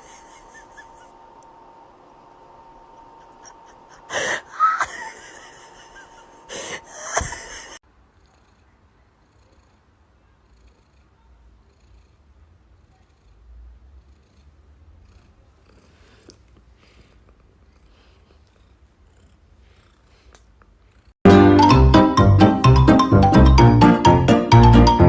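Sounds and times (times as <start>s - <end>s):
cat breathy bursts: 3.3s - 5.7s.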